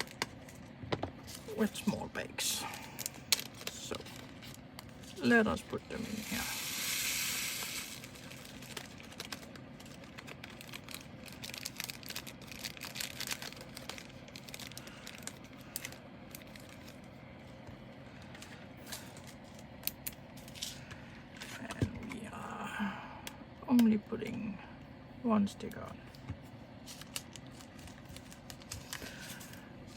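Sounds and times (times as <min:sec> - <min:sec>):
plastic bags crinkling: 0:00.0 - 0:17.1, 0:26.8 - 0:29.9.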